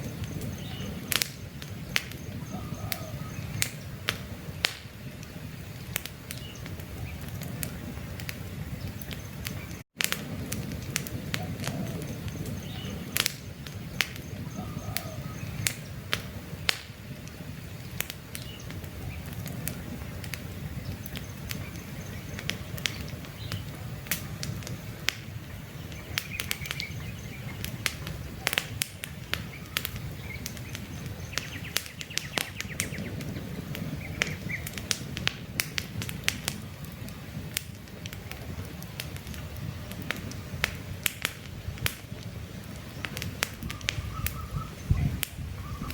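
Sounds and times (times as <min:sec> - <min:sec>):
faint bird chirps: 0:00.0 - 0:03.9, 0:11.4 - 0:16.0, 0:29.4 - 0:33.2, 0:43.6 - 0:45.9
campfire crackling and popping: 0:00.0 - 0:45.9.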